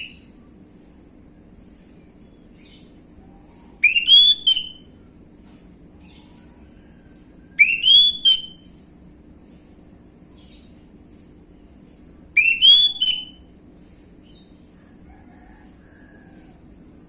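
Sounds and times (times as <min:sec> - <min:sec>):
faint steady hum: 0:00.0 - 0:17.0
thrush whistled song phrases: 0:03.4 - 0:05.0, 0:07.6 - 0:08.6, 0:10.9 - 0:13.5.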